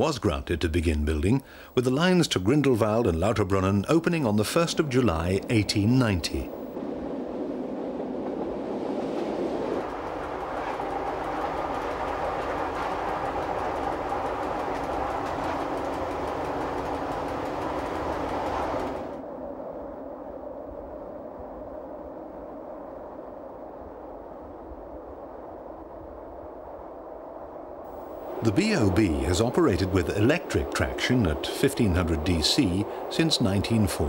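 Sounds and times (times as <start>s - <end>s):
train rushing noise: 1.4s - 19.2s, 27.9s - 34.0s
train wheels clicking over rails: 9.1s - 19.2s, 27.9s - 34.0s.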